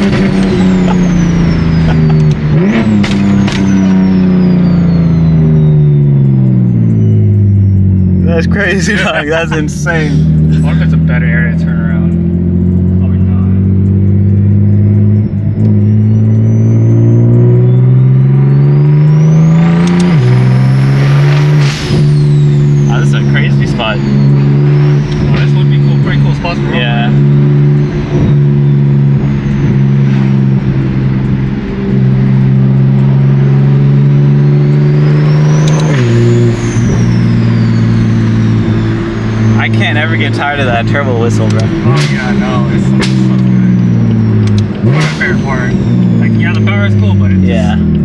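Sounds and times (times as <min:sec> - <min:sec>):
turbo whistle: 0:00.0 - 0:11.7, 0:13.5 - 0:30.9, 0:32.8 - 0:47.9
car engine accelerating hard: 0:00.0 - 0:48.0.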